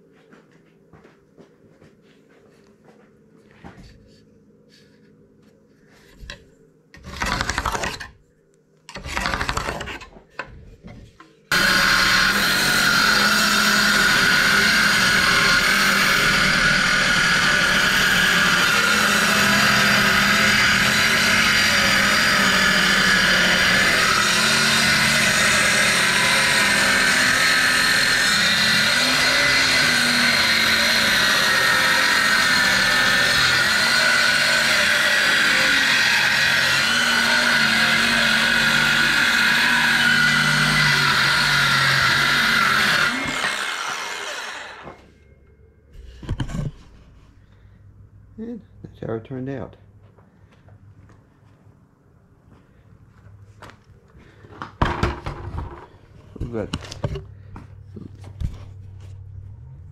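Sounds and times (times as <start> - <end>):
power tool cutting wood: 7.0 - 8.0, 11.5 - 45.1.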